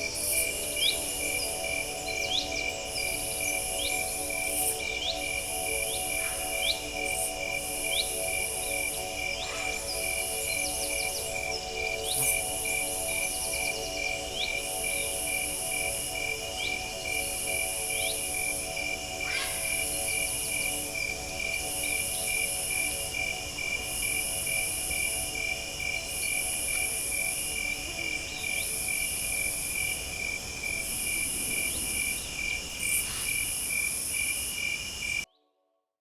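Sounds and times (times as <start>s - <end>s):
cricket trill: 0.0s - 35.3s
pulsing insect buzz: 0.1s - 13.8s
bird chirps: 19.2s - 20.3s.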